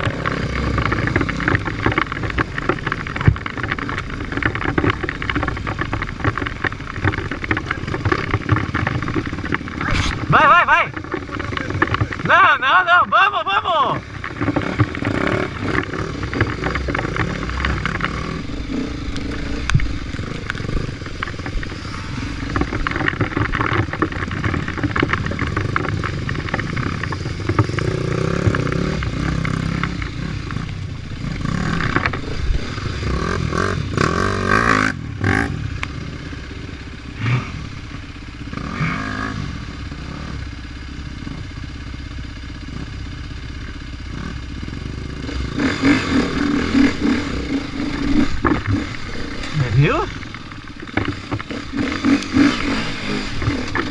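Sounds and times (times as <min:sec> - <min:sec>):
clattering and scraping: 0:00.0 - 0:12.3, 0:14.0 - 0:30.6, 0:46.2 - 0:53.9
motorcycle engine revving: 0:00.0 - 0:53.9.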